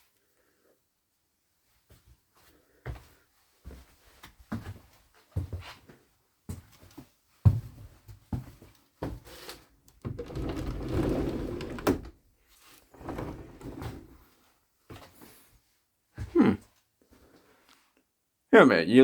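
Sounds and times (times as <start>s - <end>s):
rumble of door moving: 10.1s - 12.2s, 13.0s - 14.2s.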